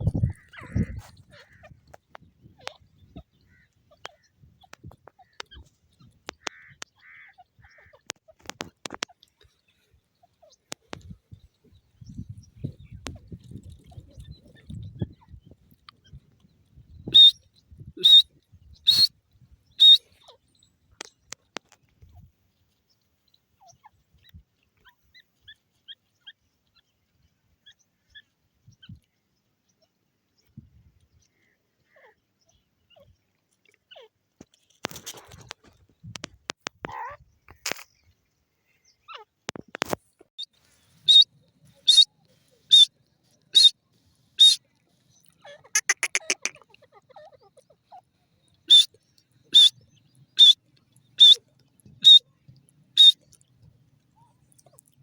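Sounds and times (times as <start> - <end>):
faint bird chirps: 17.0 - 19.1, 19.7 - 20.8, 40.4 - 42.9, 43.5 - 43.8, 44.4 - 44.6, 47.2 - 51.4, 52.0 - 52.2, 53.0 - 53.2
bird calling high notes: 45.8 - 46.5
sharp clicks: 45.8 - 46.5.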